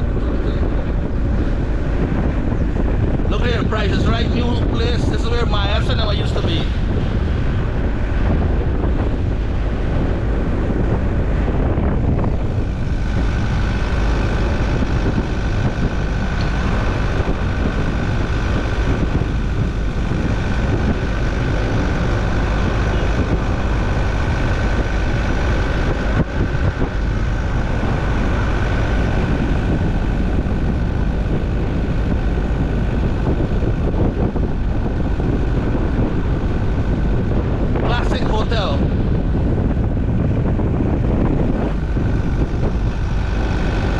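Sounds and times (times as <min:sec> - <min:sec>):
car engine and road rumble: 0:00.0 - 0:43.9
thin steady whine: 0:00.0 - 0:43.9.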